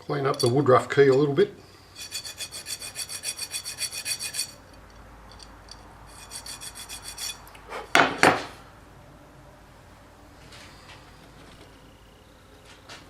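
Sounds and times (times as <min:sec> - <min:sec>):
metal rubbing strokes: 0:01.9 - 0:07.9.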